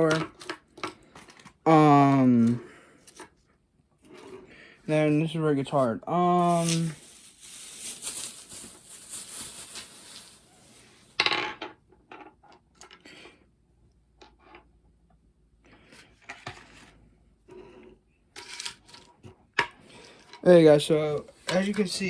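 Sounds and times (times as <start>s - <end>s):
packages rustling: 6.2s - 11.2s.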